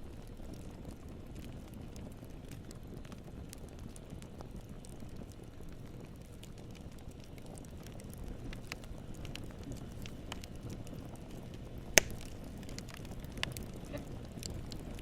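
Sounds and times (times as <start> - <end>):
burning wood crackling: 0.0 - 15.0
campfire flames rumbling: 0.0 - 15.0
sharp pop of burning wood: 11.9 - 13.6.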